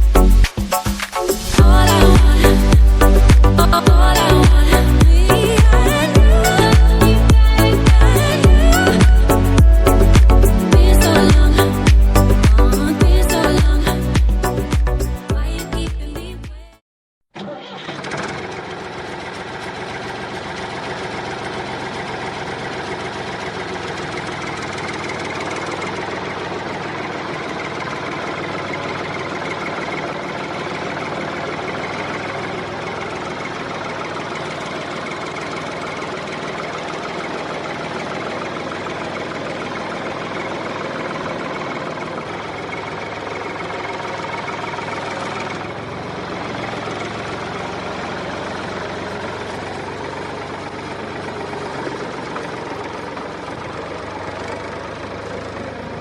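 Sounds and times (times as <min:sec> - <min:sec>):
small tractor motor running: 0:17.4 - 0:56.0.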